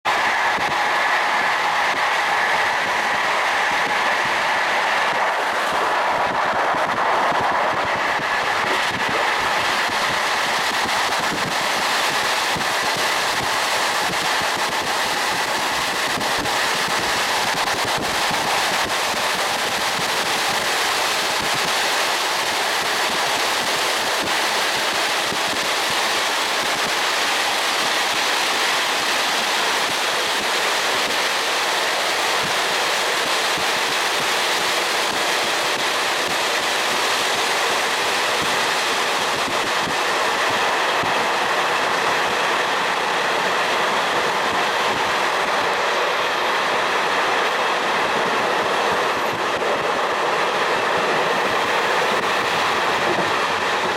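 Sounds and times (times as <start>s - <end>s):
train wheels rushing on rails: 0.0s - 53.9s.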